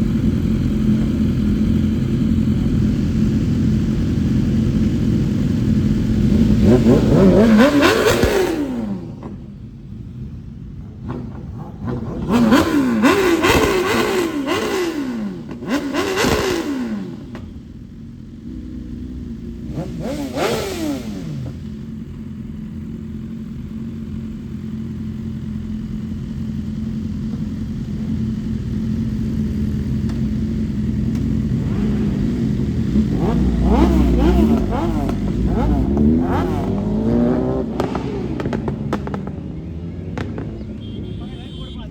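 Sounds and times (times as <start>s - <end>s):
motorcycle engine revving: 0.0s - 41.9s
steady engine drone: 0.0s - 41.9s.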